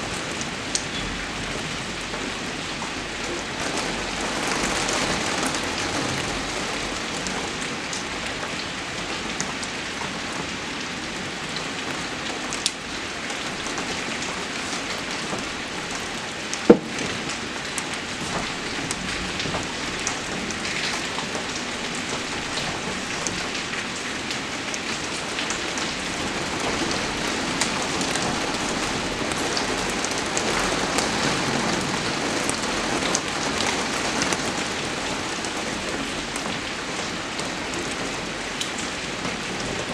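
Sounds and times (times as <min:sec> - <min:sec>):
rain falling: 0:00.0 - 0:39.9
sharp knock: 0:16.7 - 0:17.2.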